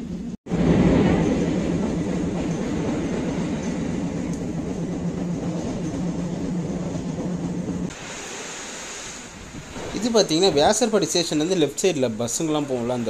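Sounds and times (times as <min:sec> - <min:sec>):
train rumble and hum: 0:00.0 - 0:08.0
wheels clattering on rails: 0:00.5 - 0:07.9
steady hiss: 0:07.9 - 0:13.0.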